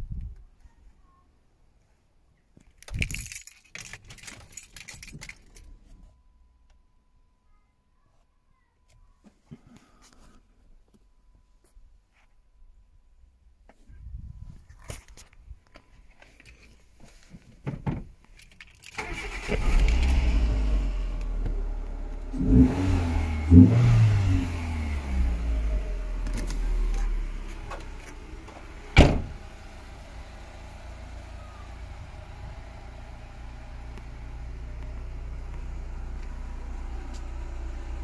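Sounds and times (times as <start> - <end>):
car engine starting and revving: 19.0 - 38.0.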